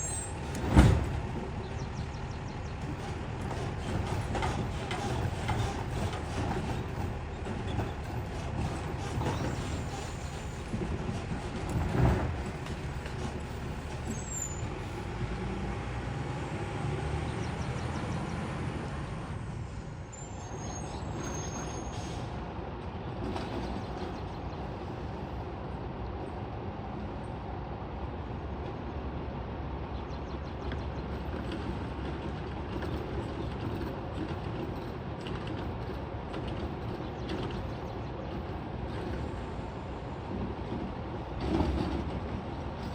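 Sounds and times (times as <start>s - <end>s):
garbage truck engine running: 0.0s - 20.1s.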